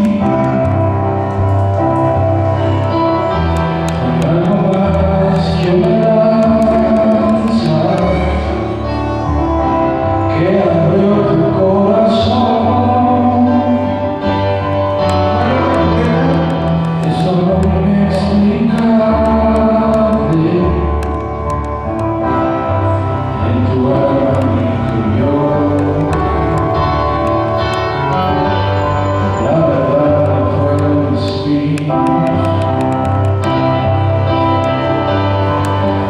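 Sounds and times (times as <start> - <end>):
held keyboard chords: 0.0 - 36.0
steady bass: 0.0 - 36.0
people singing slow song: 22.4 - 27.6.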